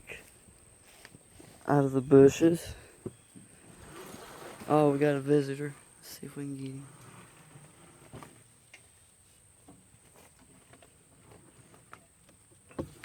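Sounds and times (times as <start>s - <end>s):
faint clicks and rustles: 6.6s - 13.0s.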